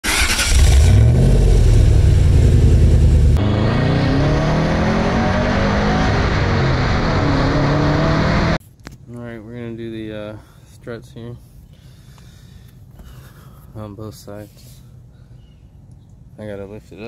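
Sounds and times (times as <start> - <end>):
car engine accelerating: 0.1 - 8.6.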